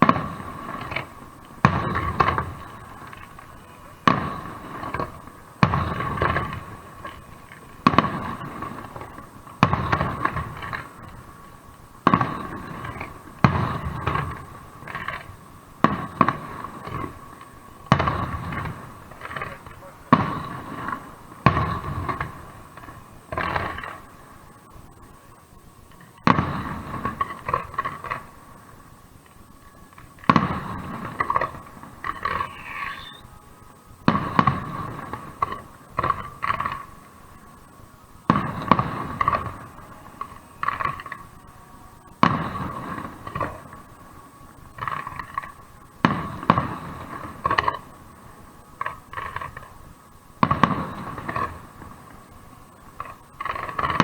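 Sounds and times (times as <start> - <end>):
fireworks exploding with crackles: 0.0 - 54.0.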